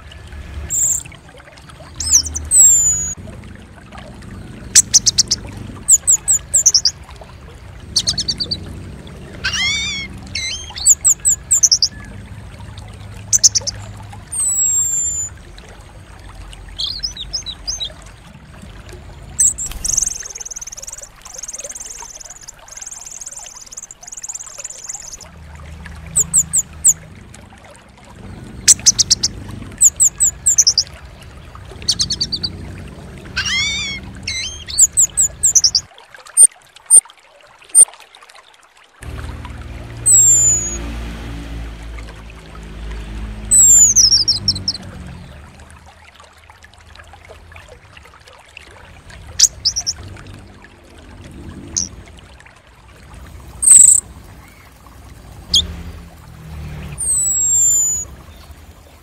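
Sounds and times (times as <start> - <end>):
high bird chirps and trills: 0.7 - 1.1, 1.9 - 3.2, 4.7 - 7.0, 8.0 - 8.7, 9.4 - 12.1, 13.3 - 15.4, 16.7 - 18.1, 19.4 - 25.3, 26.1 - 27.0, 28.6 - 31.0, 31.8 - 32.6, 33.2 - 36.5, 40.0 - 40.8, 43.5 - 44.9, 49.4 - 50.0, 51.7 - 52.0, 53.6 - 54.8, 55.5 - 55.8, 56.8 - 59.0
low hum: 39.0 - 59.0.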